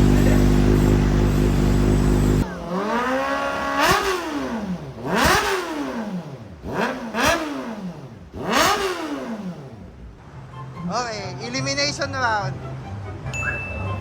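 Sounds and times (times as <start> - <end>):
loud steady drone: 0.0 - 5.2
motorcycle engine revving: 0.0 - 10.2.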